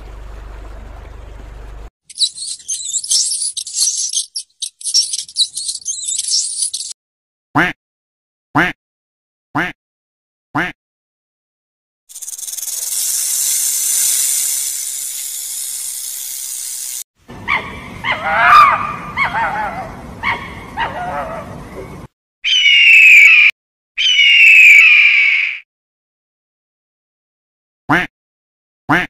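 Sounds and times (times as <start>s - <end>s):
animal hissing: 12.1s - 17.0s
loud falling animal calls: 22.5s - 25.6s.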